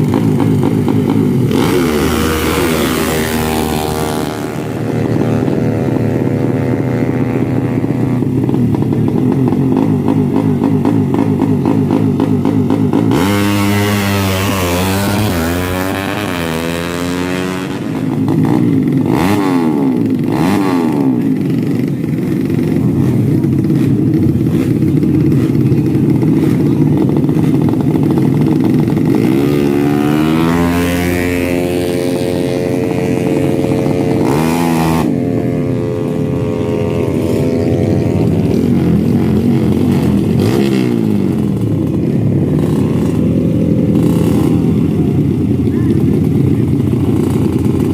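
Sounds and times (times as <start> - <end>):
motorcycle engines revving: 0.0 - 47.9.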